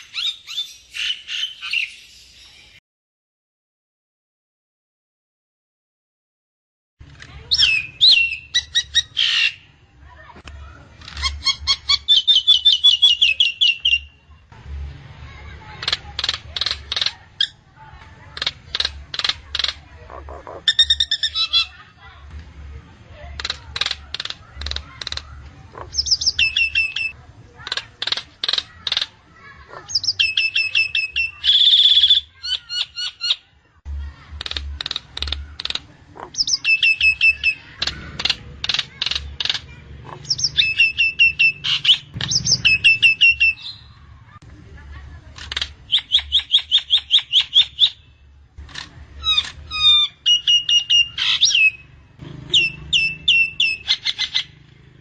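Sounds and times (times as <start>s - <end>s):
myna calling: 18.2s - 21.8s, 23.2s - 33.4s, 34.4s - 44.4s, 48.7s - 55.0s.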